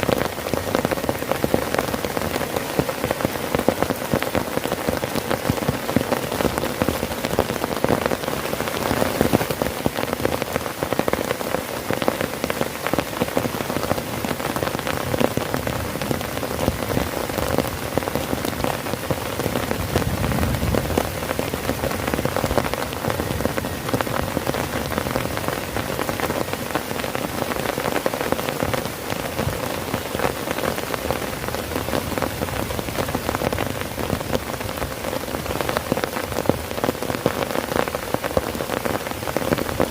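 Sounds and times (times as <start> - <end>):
heavy rain on a tent: 0.0 - 39.9.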